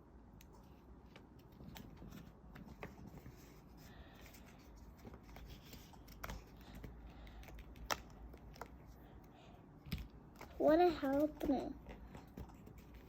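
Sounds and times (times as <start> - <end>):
paper rustling: 0.5 - 8.9.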